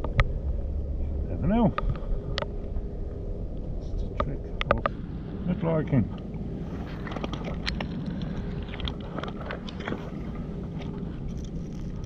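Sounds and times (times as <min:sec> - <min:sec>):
steady low rumble: 0:00.0 - 0:12.0
stones crunching and clicking: 0:07.0 - 0:12.0.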